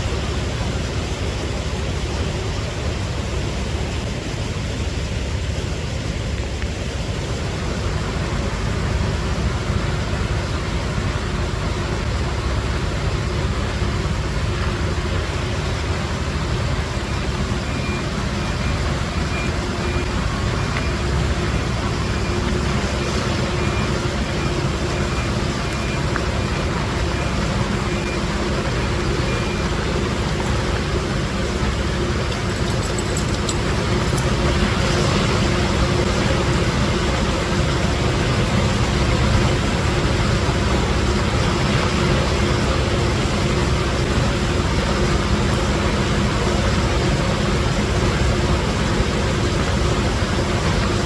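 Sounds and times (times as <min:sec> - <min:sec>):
construction machinery rumbling: 0:00.0 - 0:51.0
high reversing beeps: 0:17.0 - 0:34.3.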